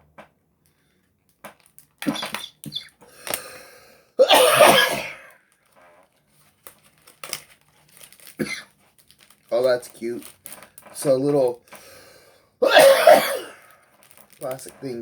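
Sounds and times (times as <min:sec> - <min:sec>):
person clearing throat: 0:04.2 - 0:05.3, 0:12.6 - 0:13.7
person coughing: 0:04.2 - 0:05.3, 0:08.4 - 0:08.7, 0:12.6 - 0:13.7.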